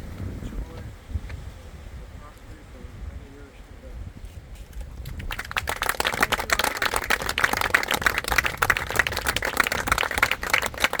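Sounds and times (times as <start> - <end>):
audience applauding: 5.0 - 11.0.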